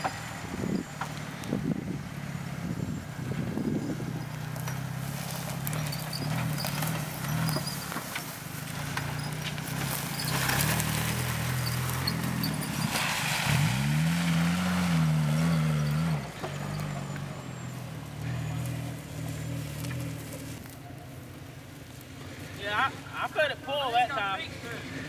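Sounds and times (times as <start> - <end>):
engine revving under load: 0.0 - 23.2
mud splashing: 4.4 - 15.8
clattering: 4.6 - 13.0.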